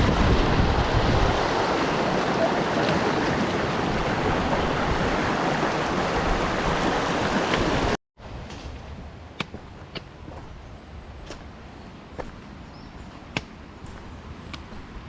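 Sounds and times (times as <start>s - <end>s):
rushing water: 0.0s - 8.0s
wind: 0.0s - 15.0s.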